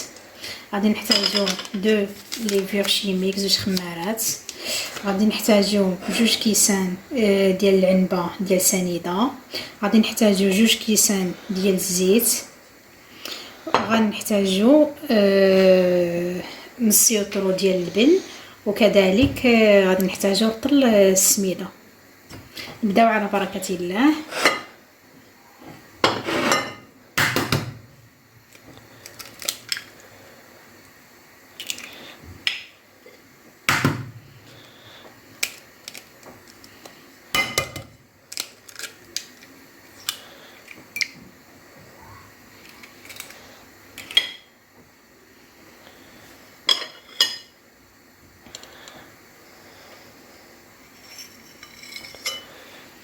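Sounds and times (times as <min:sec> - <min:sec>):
kitchen utensils clinking: 0:01.0 - 0:02.6, 0:50.9 - 0:52.5.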